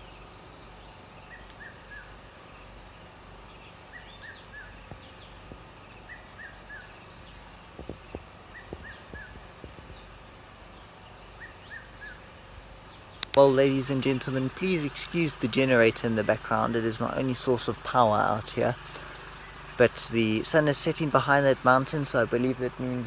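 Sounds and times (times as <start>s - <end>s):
birds chirping: 0.0s - 23.0s
generator humming: 0.0s - 23.0s
faint clicks: 1.3s - 13.4s.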